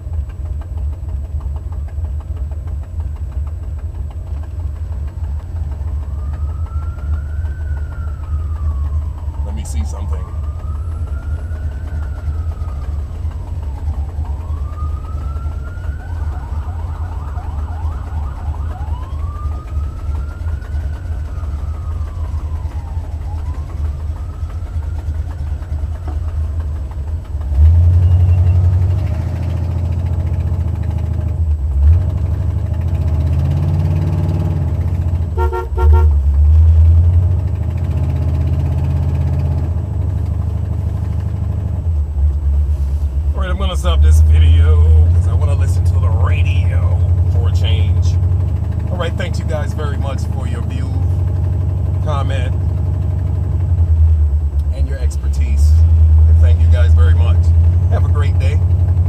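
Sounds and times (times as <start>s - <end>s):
car engine running: 0.0s - 59.0s
emergency vehicle siren wailing: 4.4s - 42.5s, 43.2s - 54.5s
horn-like tones: 35.3s - 36.3s.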